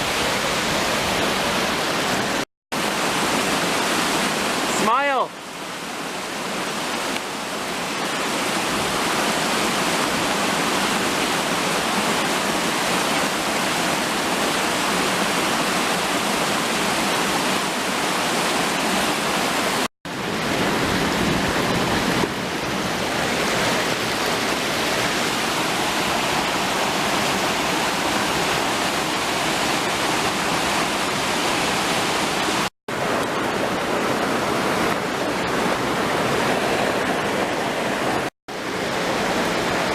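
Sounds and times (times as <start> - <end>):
waterfall pouring: 0.0 - 39.9.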